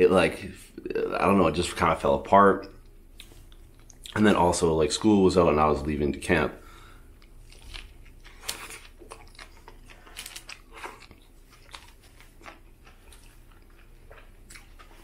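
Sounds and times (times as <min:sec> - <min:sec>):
man chewing food: 0:02.7 - 0:04.2, 0:06.7 - 0:15.0.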